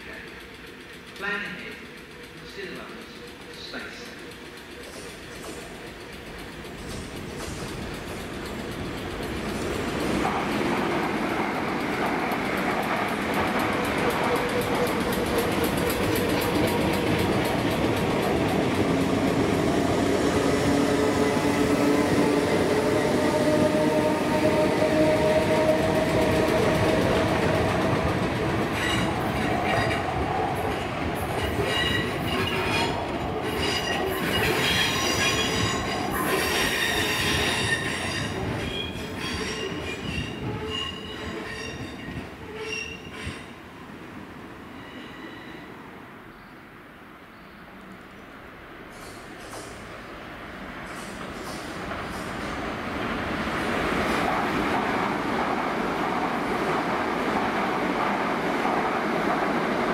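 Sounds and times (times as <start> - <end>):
train rumbling on track: 0.0 - 59.9
wheels clicking over rail joints: 0.2 - 19.8
train motor whine: 18.8 - 29.6
high wheel squeal: 33.5 - 43.4, 44.6 - 45.8.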